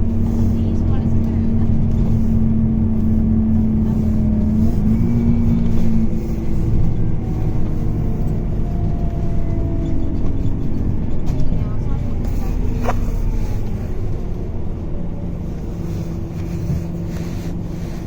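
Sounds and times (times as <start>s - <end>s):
bus diesel engine running: 0.0s - 18.0s.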